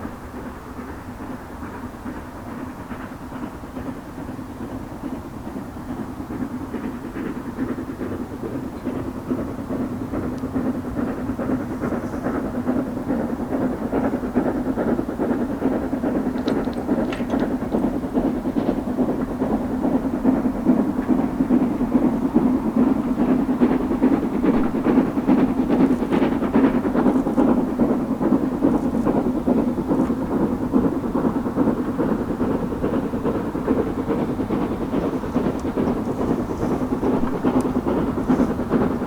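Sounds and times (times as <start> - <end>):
train wheels rumbling on track: 0.0 - 39.0
faint clicks: 16.2 - 18.0.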